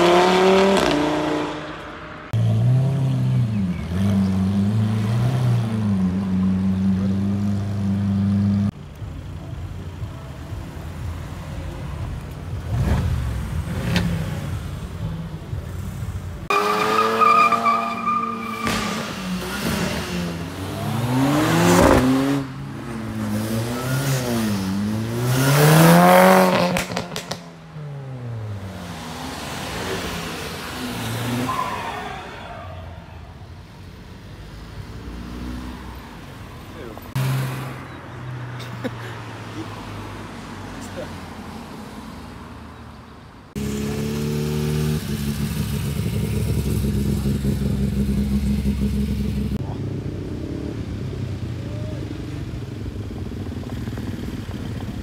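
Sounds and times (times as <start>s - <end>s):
cars revving past: 0.0s - 8.8s, 16.4s - 33.3s, 34.2s - 42.7s, 43.5s - 51.4s
engines accelerating: 0.0s - 42.7s, 43.5s - 55.0s.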